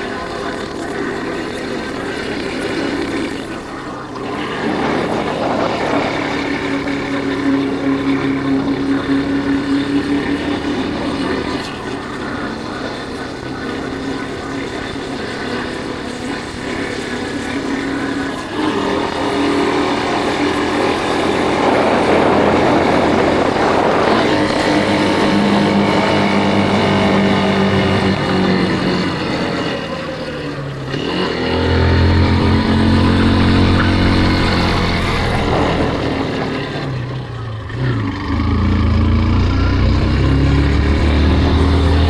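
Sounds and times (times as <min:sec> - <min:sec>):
motorcycle engine running: 0:00.0 - 0:42.0
wind noise: 0:00.0 - 0:42.0.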